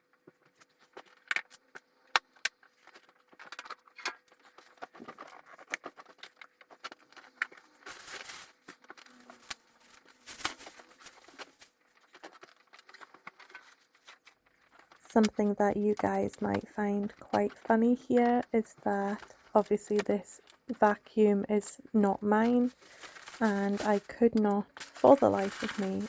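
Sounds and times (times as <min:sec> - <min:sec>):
rustling: 0:02.6 - 0:15.0, 0:22.3 - 0:26.0.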